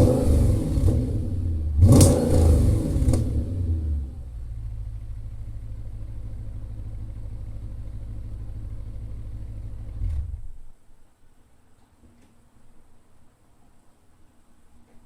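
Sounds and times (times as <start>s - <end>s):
car engine idling: 0.0s - 10.7s.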